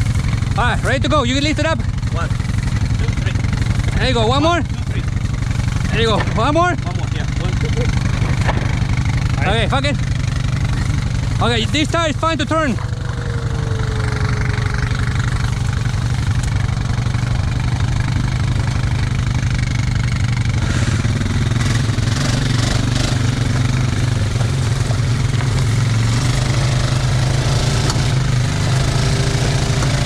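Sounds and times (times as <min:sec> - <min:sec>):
atv engine idling: 0:00.0 - 0:30.0.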